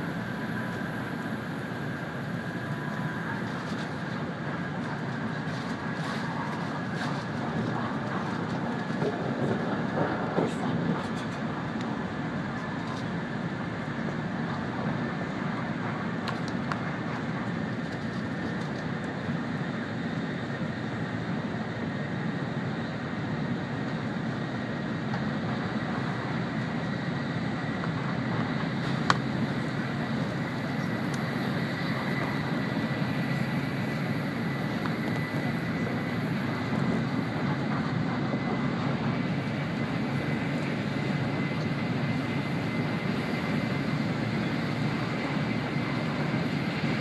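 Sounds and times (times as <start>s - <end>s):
train rumble and air rush: 0.0s - 47.0s.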